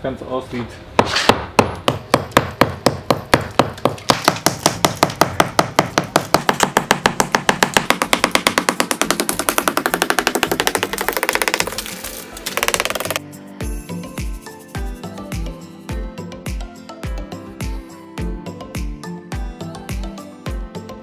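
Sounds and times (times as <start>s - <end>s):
hammer knocking plaster off brick: 1.0s - 13.2s.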